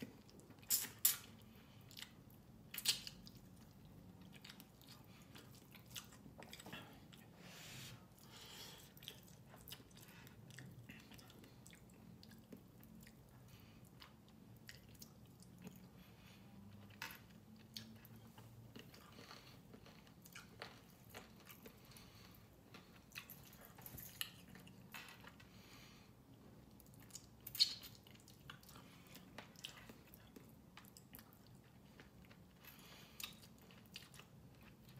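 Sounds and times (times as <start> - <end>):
chewing and wet mouth clicks: 0.2 - 7.3, 8.9 - 15.9, 26.6 - 34.9.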